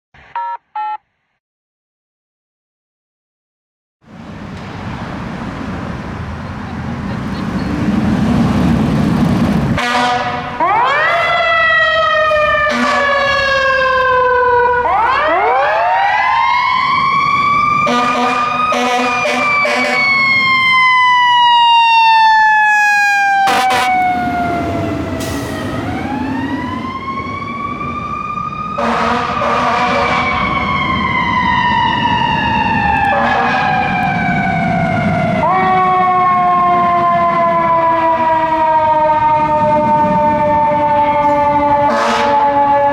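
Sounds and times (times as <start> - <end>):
fire engine sirens wailing: 4.1 - 42.9
short horn blasts: 9.8 - 10.5, 17.9 - 20.1.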